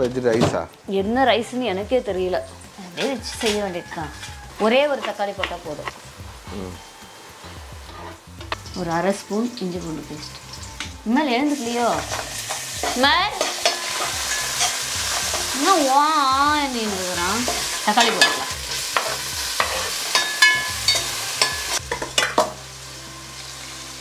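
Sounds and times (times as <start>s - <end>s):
onions sizzling in oil: 0.8s - 24.0s
ladle scraping a metal pot: 7.8s - 8.5s.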